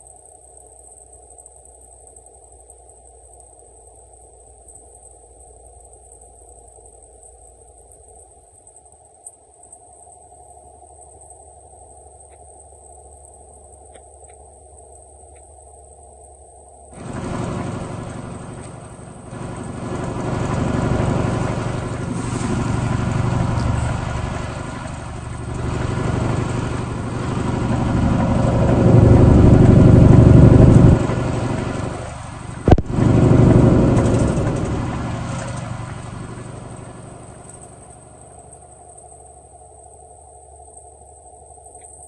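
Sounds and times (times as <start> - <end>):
truck engine running: 17.0 - 38.7.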